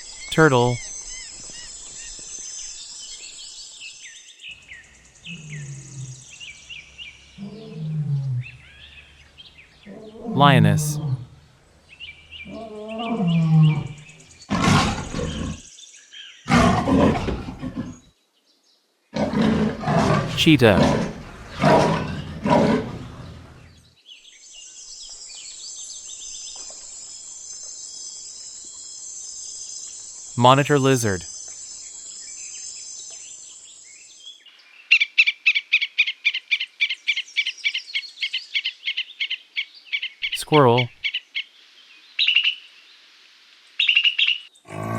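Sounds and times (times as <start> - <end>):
lioness roaring: 12.5 - 15.6, 16.5 - 18.0, 19.2 - 23.7, 44.7 - 44.9
lioness moaning call: 44.7 - 44.9.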